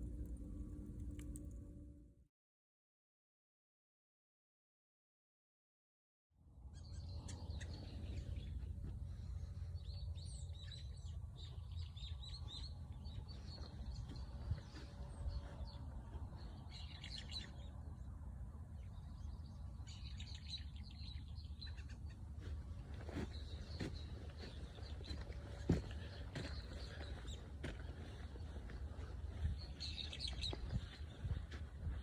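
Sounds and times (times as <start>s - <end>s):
steady low rumble: 0.0s - 2.2s, 6.6s - 32.0s
small birds chirping: 6.7s - 18.1s, 18.8s - 32.0s.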